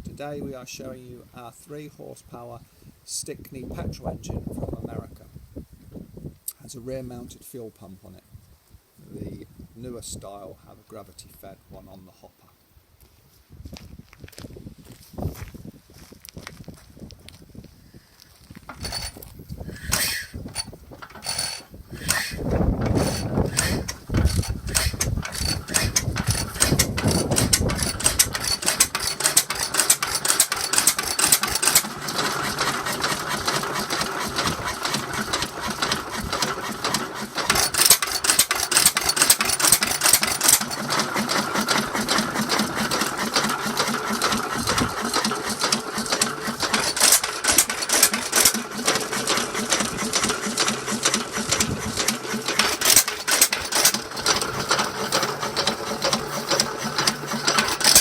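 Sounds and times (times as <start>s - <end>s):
stationary engine clattering: 18.7s - 58.0s.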